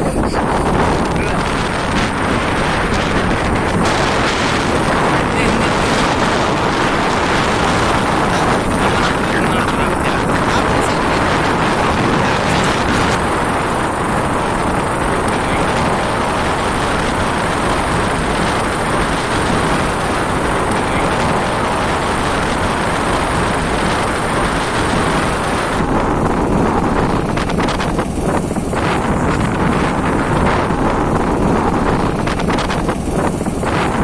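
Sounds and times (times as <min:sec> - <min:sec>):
motorcycle engine running: 0:00.0 - 0:34.0
road noise: 0:00.0 - 0:34.0
wind rushing over microphone: 0:00.0 - 0:34.0.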